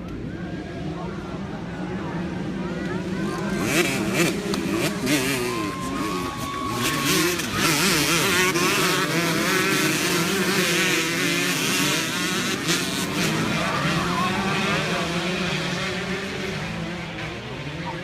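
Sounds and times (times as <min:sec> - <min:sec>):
dirt bikes revving: 0:00.8 - 0:18.0.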